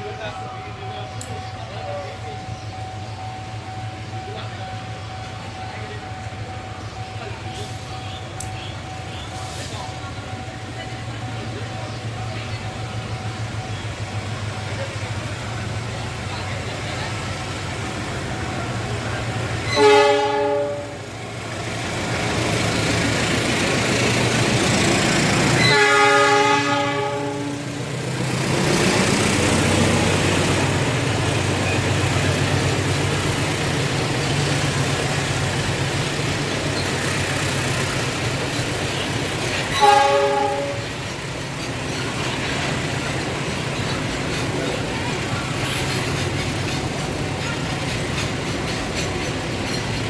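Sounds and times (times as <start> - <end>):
train running: 0.0 - 50.0
locomotive horn blasts: 19.6 - 21.1, 25.4 - 27.8, 39.7 - 41.0.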